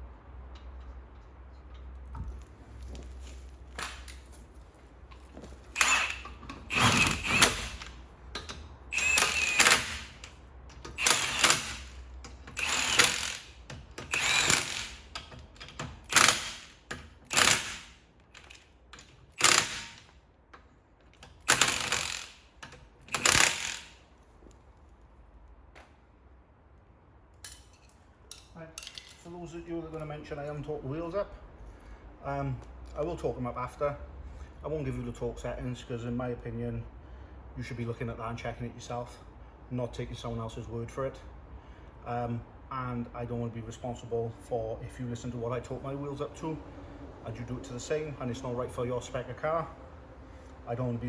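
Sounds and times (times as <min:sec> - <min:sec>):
impact wrench bursts: 0:05.7 - 0:20.1, 0:21.2 - 0:24.0.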